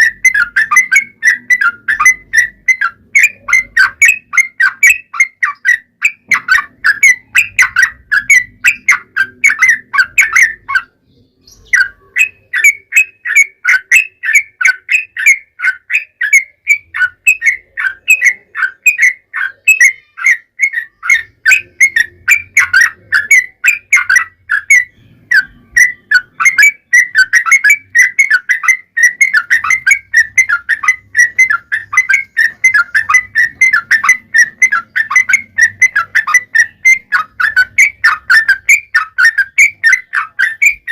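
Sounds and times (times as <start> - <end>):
bird singing chattering whistles: 0.0 - 40.9.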